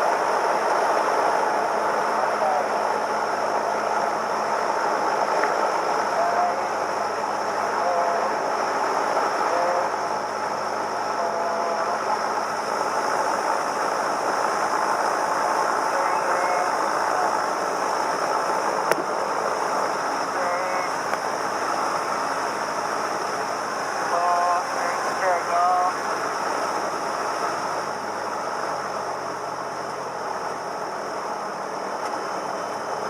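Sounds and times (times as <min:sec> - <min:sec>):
plane engine from cockpit: 0:00.0 - 0:33.0
faint voices: 0:01.5 - 0:14.0, 0:15.2 - 0:27.0.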